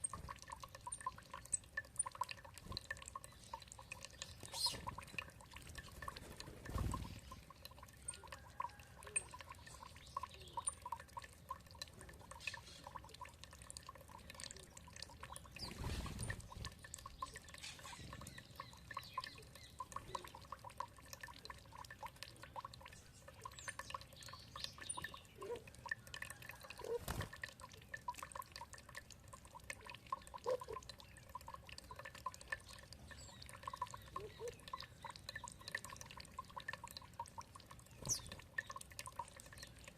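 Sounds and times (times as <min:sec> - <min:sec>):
water dripping and trickling: 0:00.0 - 0:39.9
faint bird chirps: 0:03.2 - 0:05.0, 0:15.3 - 0:20.4, 0:31.9 - 0:36.0.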